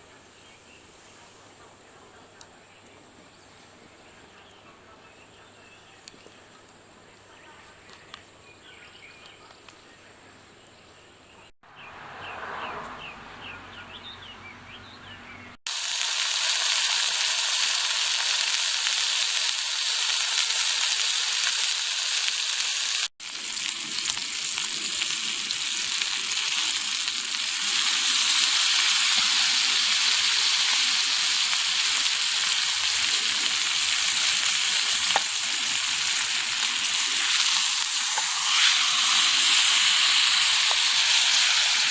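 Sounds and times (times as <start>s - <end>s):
meat sizzling on grill: 15.7s - 41.9s.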